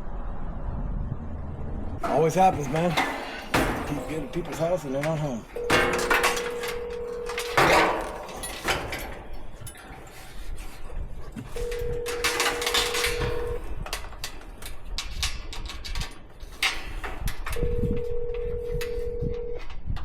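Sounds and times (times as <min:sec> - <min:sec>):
clicks and knocks: 0:02.0 - 0:20.0
telephone ringback tone: 0:05.6 - 0:07.7, 0:11.6 - 0:13.6, 0:17.6 - 0:19.9.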